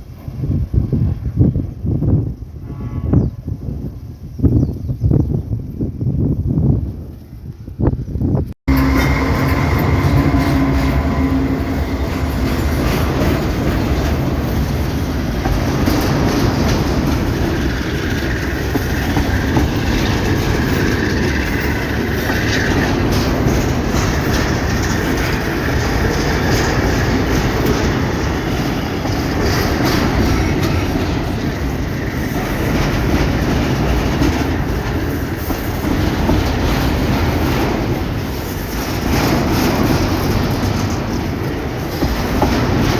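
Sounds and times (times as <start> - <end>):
train wheel squeal: 8.7 - 42.9
train wheels clacking on rails: 8.7 - 42.9.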